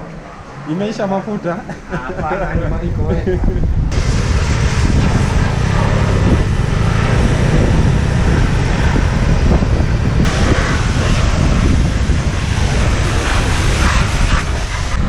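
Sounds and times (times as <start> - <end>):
wind rumble on microphone: 1.9 - 15.0
vehicle engine running: 3.8 - 15.0.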